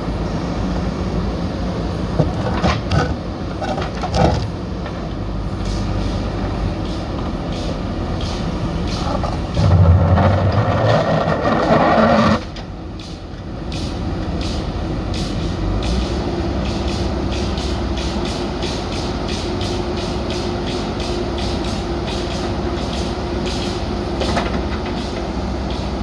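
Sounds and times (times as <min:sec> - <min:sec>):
diesel engine running: 0:00.0 - 0:11.8.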